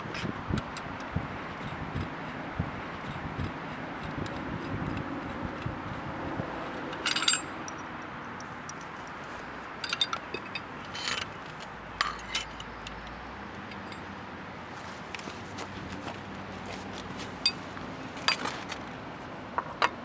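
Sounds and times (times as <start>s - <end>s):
metal parts clinking and rattling: 6.9s - 9.0s, 9.8s - 12.9s, 17.4s - 18.8s.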